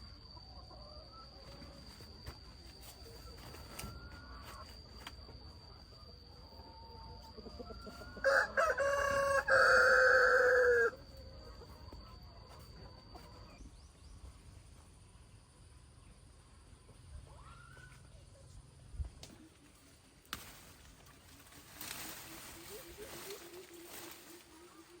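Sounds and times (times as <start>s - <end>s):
rooster crowing: 8.0s - 11.0s.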